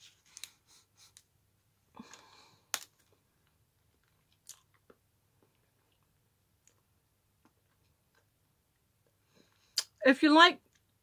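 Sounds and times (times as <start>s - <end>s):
chocolate snapping: 2.0s - 3.2s
person chewing chocolate: 2.0s - 9.8s.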